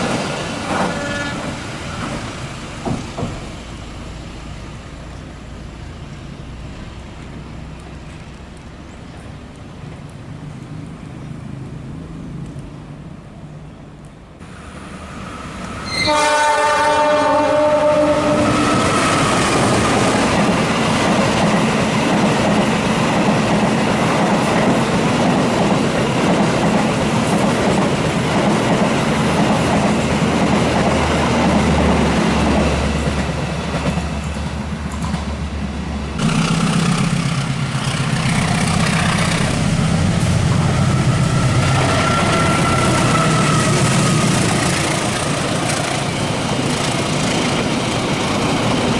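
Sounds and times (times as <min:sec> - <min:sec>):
train wheel and rail noise: 0:00.0 - 0:48.9
train horn: 0:00.7 - 0:01.6, 0:15.8 - 0:19.1.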